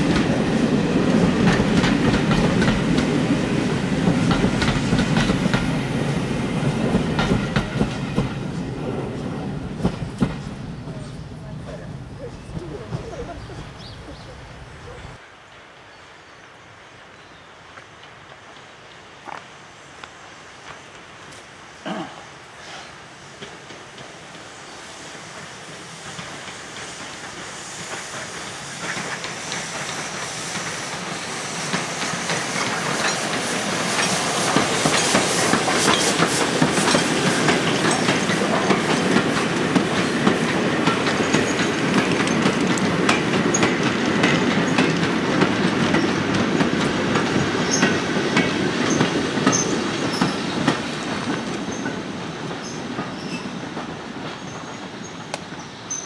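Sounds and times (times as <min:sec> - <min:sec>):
train wheels clattering over rail joints: 0:00.0 - 0:11.0, 0:25.2 - 0:56.0
steam locomotive approaching: 0:00.0 - 0:56.0.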